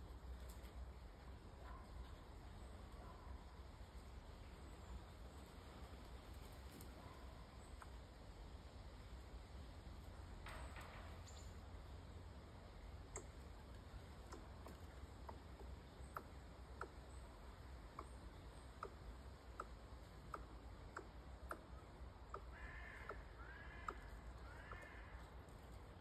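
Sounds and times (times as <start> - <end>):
distant bird calls: 10.0 - 26.0
faint sharp clicks: 13.0 - 24.9.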